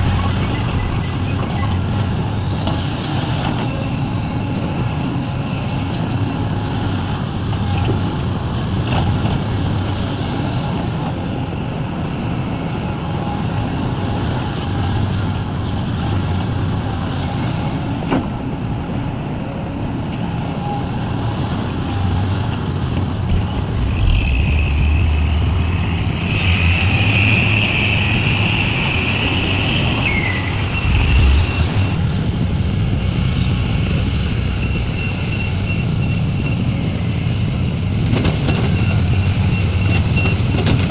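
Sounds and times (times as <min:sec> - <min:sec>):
high squealing whine: 0:00.0 - 0:02.7, 0:23.0 - 0:32.3
diesel machinery engines rumbling: 0:00.0 - 0:40.9.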